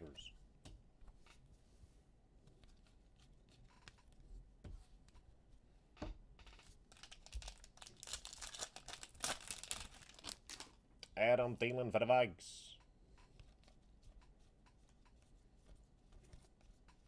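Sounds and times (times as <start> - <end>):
wrapper crinkling and tearing: 6.9 - 10.8.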